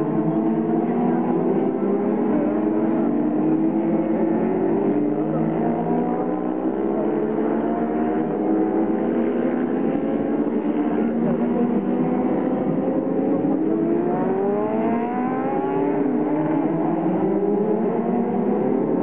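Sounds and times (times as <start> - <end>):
racing motorcycle engines: 0.0 - 19.0.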